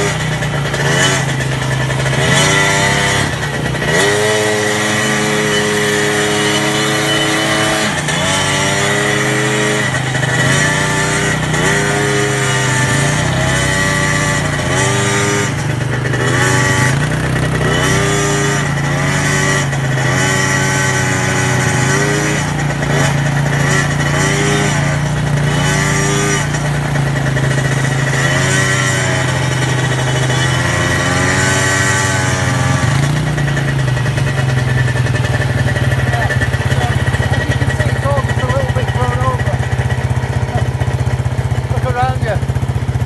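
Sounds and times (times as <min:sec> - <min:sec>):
low engine drone: 0:00.0 - 0:43.0
quad bike engine revving: 0:00.0 - 0:43.0.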